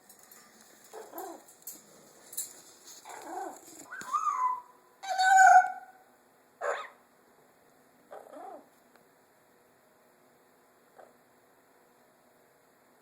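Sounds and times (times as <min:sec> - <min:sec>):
parrot calling: 0:03.0 - 0:06.0.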